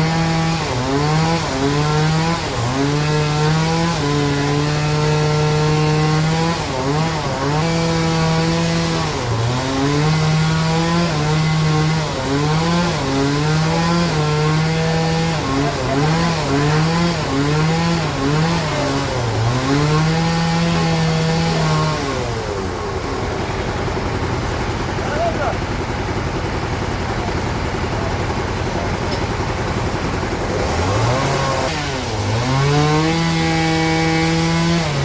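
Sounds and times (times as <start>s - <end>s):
bandsaw cutting into log: 0.0s - 35.0s.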